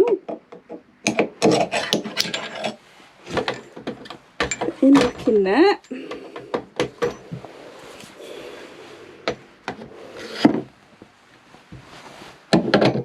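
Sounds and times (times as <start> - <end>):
wooden pieces knocking: 0.0 - 7.5
wood scraping: 6.1 - 12.5.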